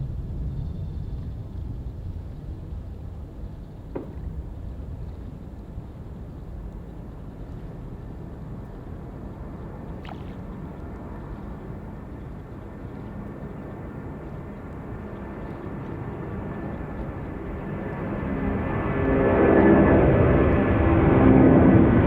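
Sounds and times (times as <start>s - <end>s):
distant jet engines rumbling: 0.0s - 22.0s.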